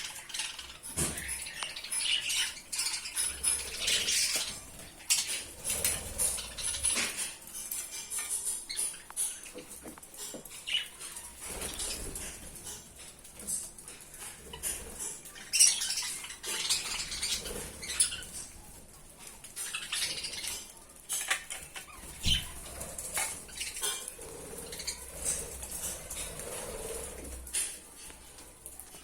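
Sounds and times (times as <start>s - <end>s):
clinks and rattles in a cage: 0.0s - 29.0s
wing flutters: 10.6s - 29.0s.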